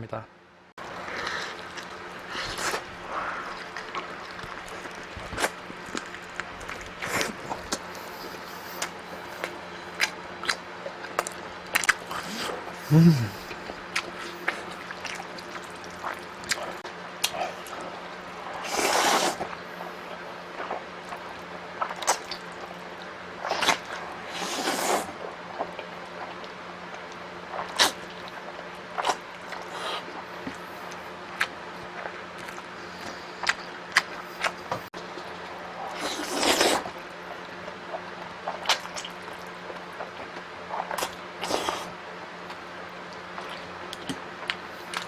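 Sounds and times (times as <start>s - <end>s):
slurping noodles: 1.0s - 6.1s, 12.0s - 15.8s, 18.4s - 19.5s, 23.4s - 25.2s, 35.7s - 37.0s, 40.8s - 42.0s.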